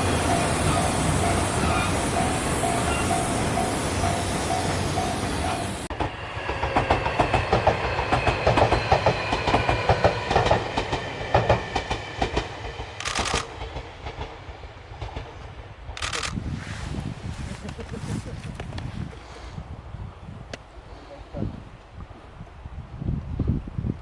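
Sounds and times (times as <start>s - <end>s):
train rumble: 0.0s - 20.0s
train wheels clacking over rail joints: 2.1s - 16.3s.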